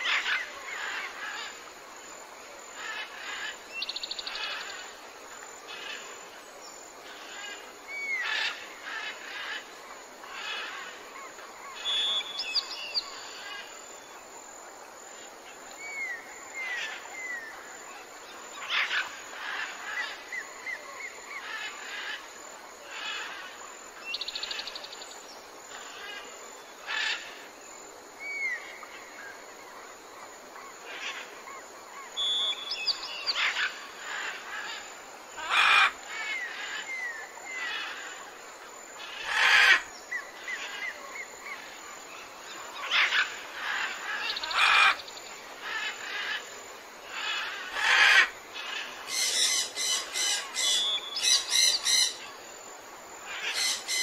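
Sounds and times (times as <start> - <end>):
birds chirping and trilling: 2.8 - 5.0, 5.7 - 6.2, 7.0 - 13.7, 18.3 - 22.3, 30.9 - 38.4, 39.0 - 52.4, 53.2 - 54.0
loud bird calls: 7.1 - 13.7, 18.6 - 22.3, 30.8 - 38.4, 39.0 - 52.4, 53.2 - 54.0.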